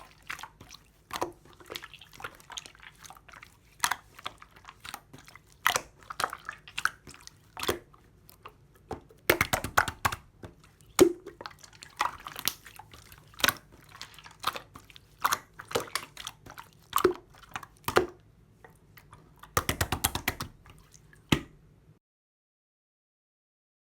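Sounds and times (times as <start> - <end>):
slime crackling: 0.0 - 18.2
slime squished by hand: 0.0 - 18.2.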